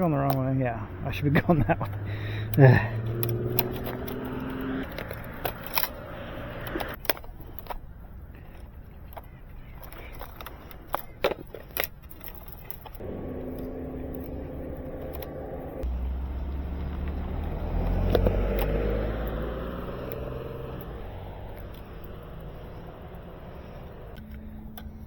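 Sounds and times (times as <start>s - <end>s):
vehicle engine with rising whine: 0.5s - 7.0s, 13.0s - 25.0s
sharp clicks: 1.8s - 7.8s, 9.0s - 25.0s.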